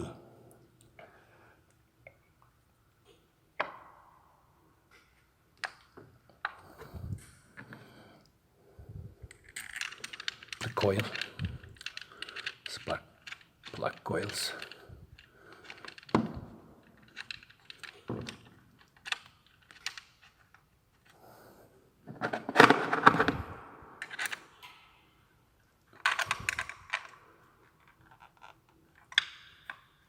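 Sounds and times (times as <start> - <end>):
plastic and metal clicks and rattles: 9.2 - 21.2, 22.2 - 24.8, 25.9 - 30.0.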